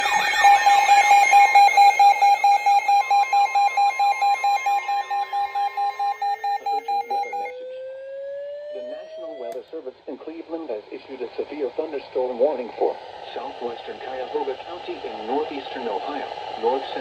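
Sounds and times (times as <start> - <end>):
electronic alarm beeping: 0.0 - 7.7.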